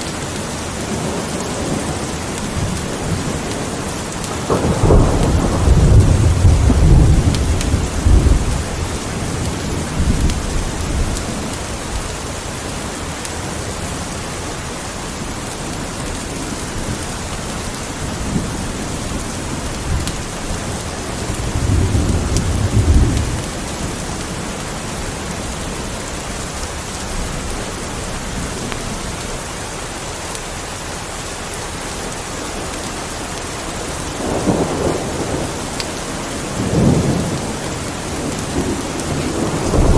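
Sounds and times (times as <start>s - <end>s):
steady rain: 0.0s - 39.9s
thunder rolling: 0.9s - 12.0s, 16.6s - 29.2s, 34.2s - 39.9s.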